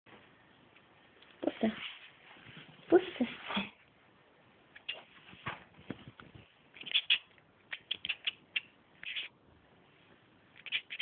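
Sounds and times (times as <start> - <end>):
cat chirping: 6.7 - 9.4, 10.6 - 11.0.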